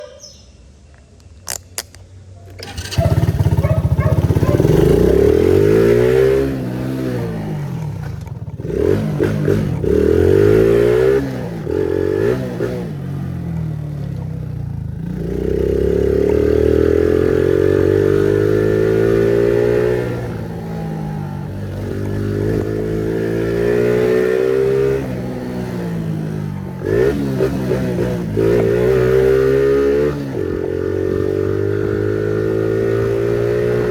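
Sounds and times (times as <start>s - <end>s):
sharp clicks: 0.9s - 3.0s
motorcycle engine revving: 1.4s - 33.9s.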